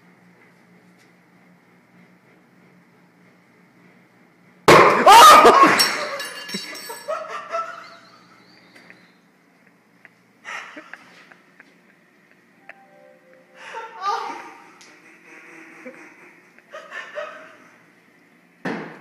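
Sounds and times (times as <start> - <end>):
microwave hum: 0.0 - 19.0
clattering ringing: 5.8 - 7.2.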